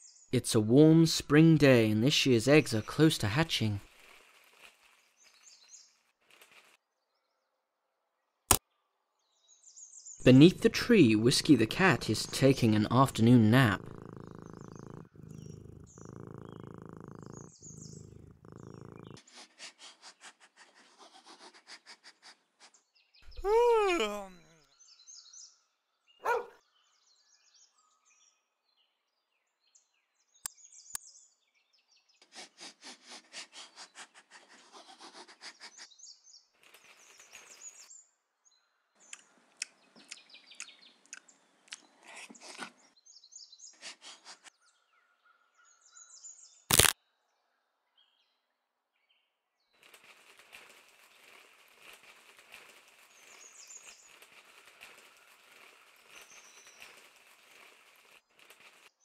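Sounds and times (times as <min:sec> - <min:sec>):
chewing and crunching: 0:03.8 - 0:05.6, 0:49.8 - 0:58.9
birds chirping: 0:09.4 - 0:19.2, 0:22.8 - 0:26.6, 0:49.8 - 0:58.9.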